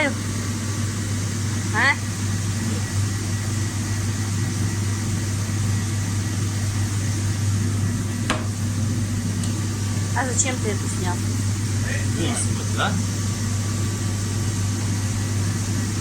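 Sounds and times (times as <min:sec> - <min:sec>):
machine hum with low drone: 0:00.0 - 0:16.0.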